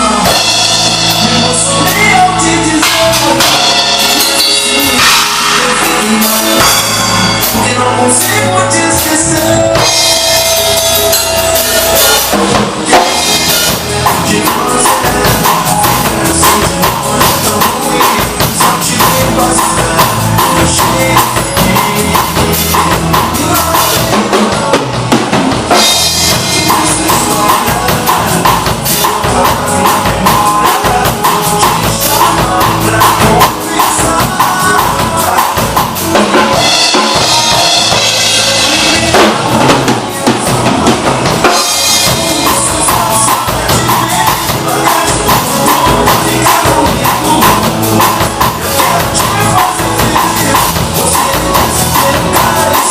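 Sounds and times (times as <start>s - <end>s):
drum kit playing: 0.0s - 52.9s
recorded song backing track: 0.0s - 52.9s.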